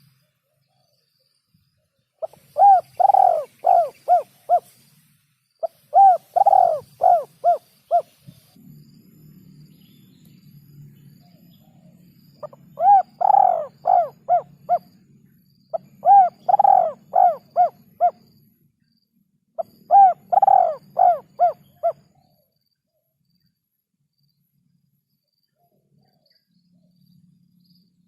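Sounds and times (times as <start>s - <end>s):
faint low hum: 0.0s - 28.0s
dove cooing: 2.2s - 4.8s, 5.6s - 8.3s, 12.4s - 14.9s, 15.7s - 18.2s, 19.6s - 22.3s.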